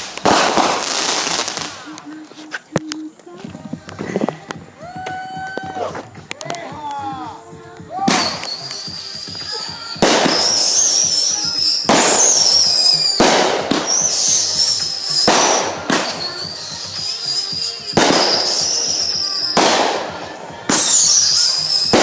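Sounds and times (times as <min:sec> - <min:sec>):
fireworks bangs: 0:00.0 - 0:22.0
high wavering whistle: 0:04.8 - 0:22.0.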